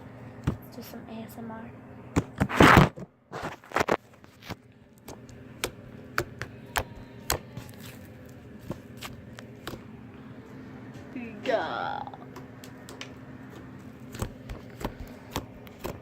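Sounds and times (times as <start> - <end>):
slime squished by hand: 3.8 - 9.9.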